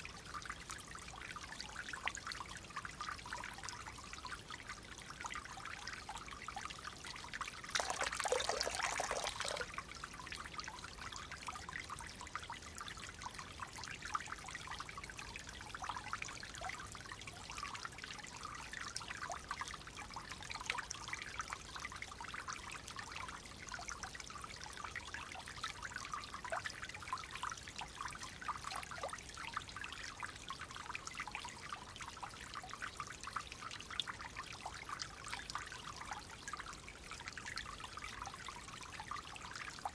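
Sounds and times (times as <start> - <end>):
water trickling and babbling: 0.0 - 39.9
small water splashes: 1.3 - 11.5.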